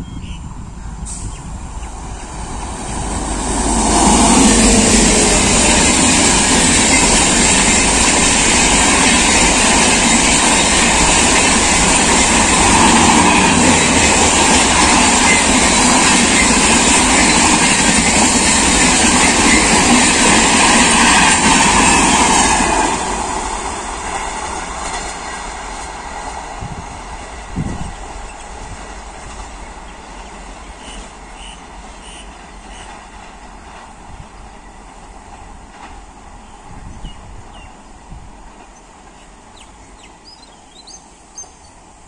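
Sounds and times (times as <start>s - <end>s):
train rushing past: 0.5s - 42.0s.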